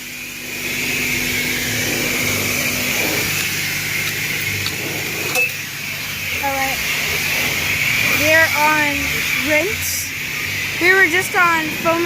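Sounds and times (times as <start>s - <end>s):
high-pressure water spray hissing: 0.0s - 12.0s
pump humming: 0.0s - 12.0s.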